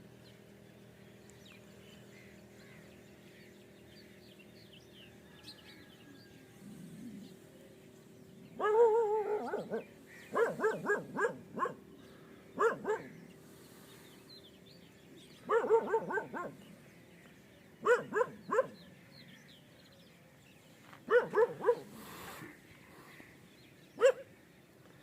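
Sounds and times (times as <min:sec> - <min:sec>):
dog barking: 0:08.6 - 0:11.8, 0:12.6 - 0:13.1, 0:15.5 - 0:16.6, 0:17.8 - 0:18.8, 0:21.1 - 0:21.9, 0:24.0 - 0:24.3.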